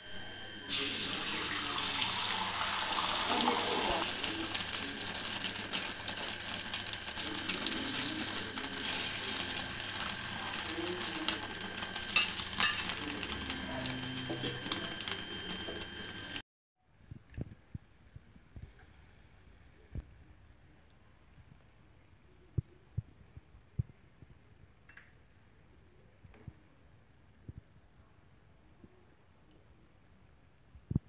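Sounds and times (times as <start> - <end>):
egg sizzling in hot oil: 0.2 - 16.4
oil crackling: 1.4 - 16.4.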